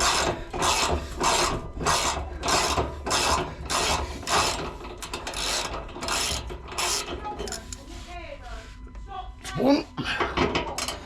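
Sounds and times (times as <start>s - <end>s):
ratchet wrench clicking: 0.0s - 7.8s.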